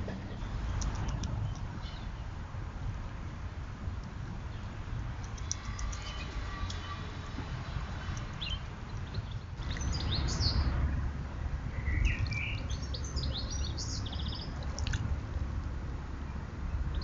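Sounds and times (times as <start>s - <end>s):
small birds chirping: 0.0s - 2.4s, 3.9s - 10.8s, 11.7s - 15.0s, 16.3s - 17.0s.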